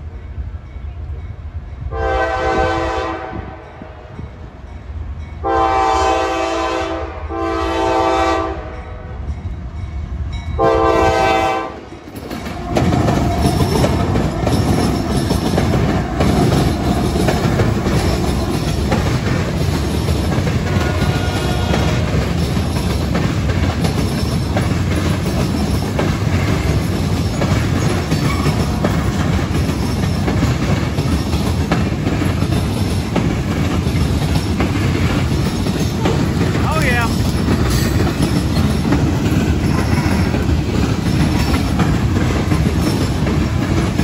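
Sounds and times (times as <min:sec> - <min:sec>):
diesel locomotives passing: 0:00.0 - 0:44.0
freight cars rumbling on rails: 0:00.0 - 0:44.0
train horn blasts: 0:01.9 - 0:04.1, 0:05.4 - 0:09.2, 0:10.6 - 0:11.9, 0:20.7 - 0:22.2.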